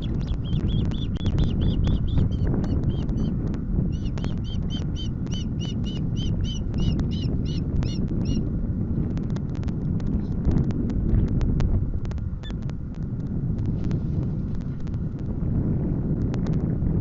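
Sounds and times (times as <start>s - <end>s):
osprey whistled calls: 0.0s - 3.3s, 3.9s - 8.4s
wind rumbling on microphone: 0.0s - 17.0s.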